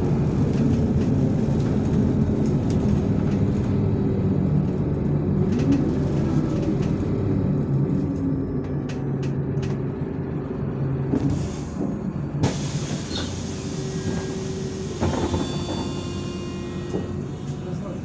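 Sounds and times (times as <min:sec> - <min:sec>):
road and body noise: 0:00.0 - 0:12.7
bus engine running: 0:00.0 - 0:18.0
hiss: 0:12.4 - 0:14.8.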